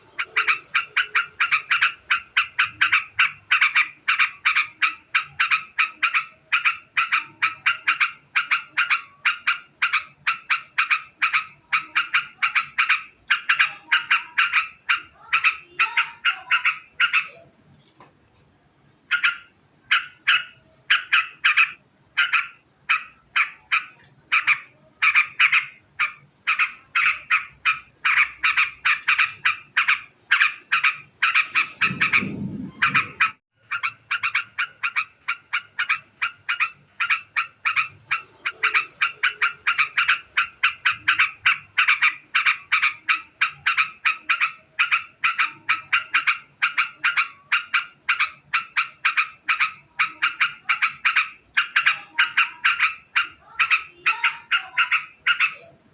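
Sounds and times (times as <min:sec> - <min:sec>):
bird chattering call: 0:00.0 - 0:17.4, 0:19.1 - 0:55.8
low rumble: 0:31.6 - 0:33.4.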